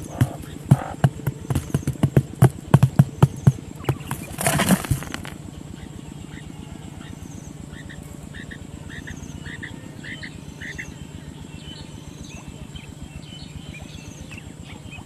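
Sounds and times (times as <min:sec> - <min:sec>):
dense rustling: 0:00.0 - 0:05.4
sharp knocks: 0:00.0 - 0:05.4.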